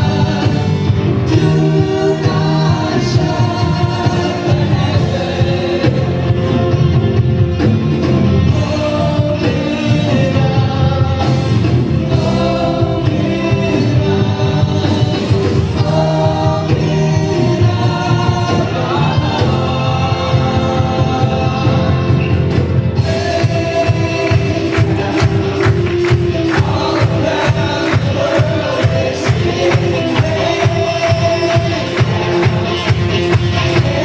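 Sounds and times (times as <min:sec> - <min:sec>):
worship band playing with singing: 0:00.0 - 0:34.0.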